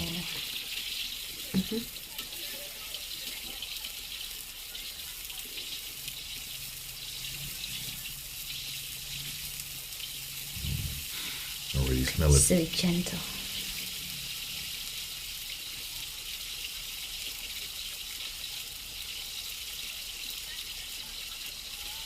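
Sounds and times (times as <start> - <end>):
hot wok hissing: 0.0 - 22.0.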